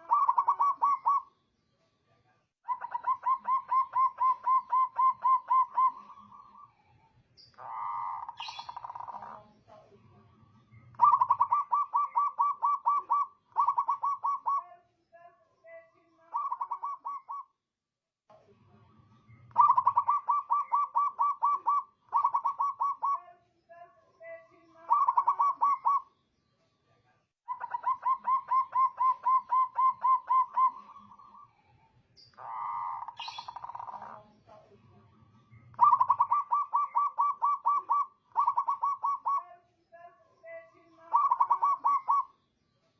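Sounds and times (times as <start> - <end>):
dove cooing: 0.0 - 1.3, 2.7 - 6.7, 7.6 - 9.5, 11.0 - 14.7, 16.3 - 17.5, 19.5 - 23.2, 24.8 - 26.1, 27.5 - 31.6, 32.3 - 34.3, 35.7 - 39.5, 40.8 - 42.3.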